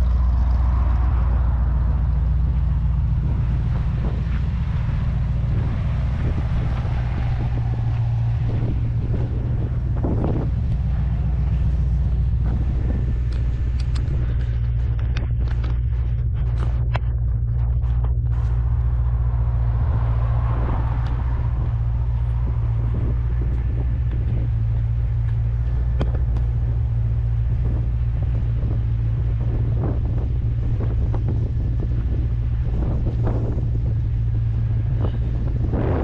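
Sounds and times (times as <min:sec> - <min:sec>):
car engine drone: 0:00.0 - 0:36.0
wind buffeting microphone: 0:00.0 - 0:36.0
sharp clicks: 0:13.2 - 0:15.8.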